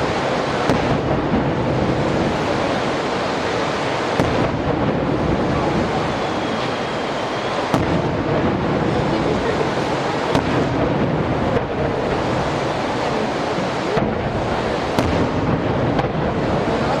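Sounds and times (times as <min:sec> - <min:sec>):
fireworks rumble and crackle: 0:00.0 - 0:17.0
sharp firework bangs: 0:00.0 - 0:17.0
faint thin whistle: 0:06.0 - 0:07.7.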